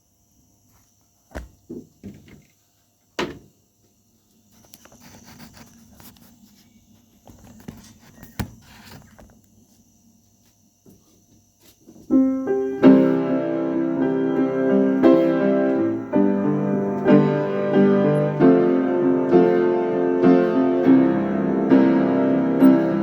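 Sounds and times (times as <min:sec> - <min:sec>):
soft shuffling and rustling: 0:04.2 - 0:12.2.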